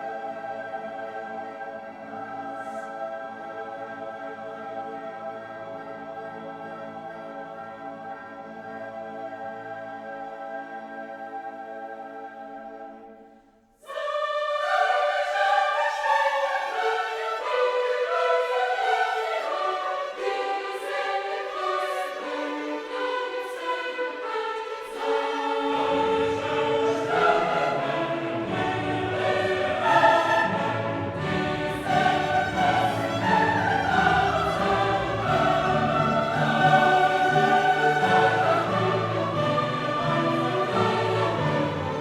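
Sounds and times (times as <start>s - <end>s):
choir singing with orchestra: 0.0s - 42.0s.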